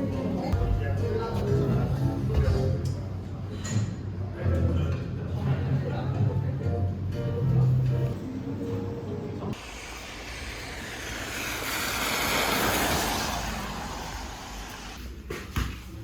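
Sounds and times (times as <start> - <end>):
rushing noise: 9.6 - 15.0.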